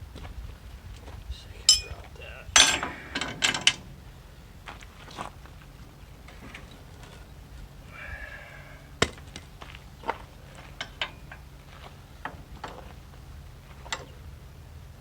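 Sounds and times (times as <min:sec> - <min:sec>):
hand tools clicking and knocking: 0:01.7 - 0:03.9.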